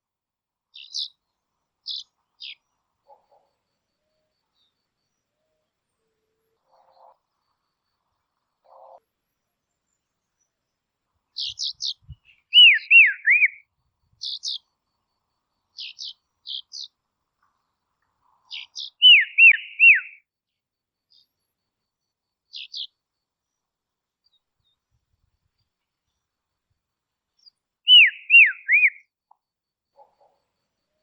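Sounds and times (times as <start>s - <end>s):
songbird chip notes: 11.4s - 13.6s, 18.5s - 20.2s, 27.9s - 29.0s
down-slurred whistles: 12.5s - 13.6s, 19.0s - 20.2s, 27.9s - 29.0s.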